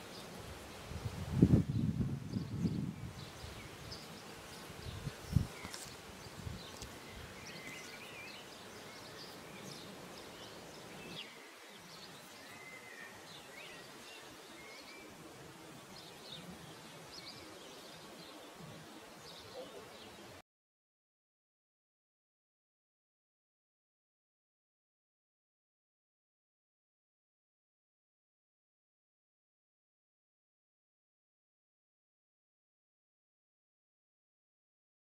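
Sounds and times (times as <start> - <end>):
soft outdoor hiss: 0.0 - 20.4
small birds chirping: 1.7 - 20.4.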